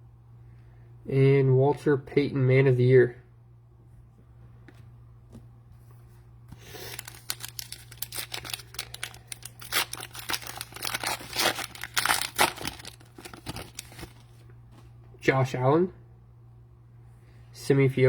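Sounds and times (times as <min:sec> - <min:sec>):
cellophane wrapper tearing and crinkling: 0:06.6 - 0:14.4.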